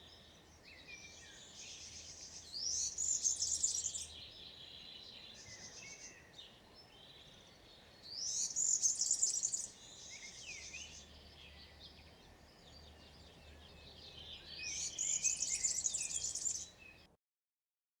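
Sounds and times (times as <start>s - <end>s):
bird singing jingling song: 0.0s - 17.1s
bird twittering: 14.3s - 16.8s.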